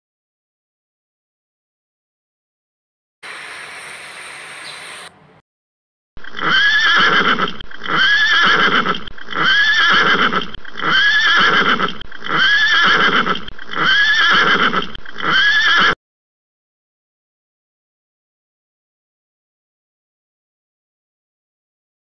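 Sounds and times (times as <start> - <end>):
horse whinnying: 6.3 - 16.0.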